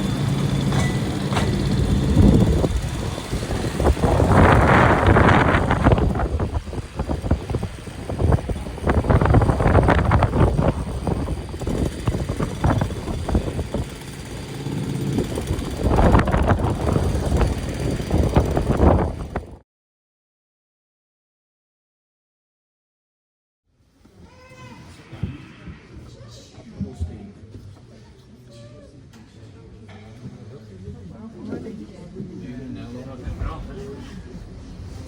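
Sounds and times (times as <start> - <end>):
tramcar rumbling on track: 0.0 - 19.6
wind gusts on microphone: 0.0 - 19.6.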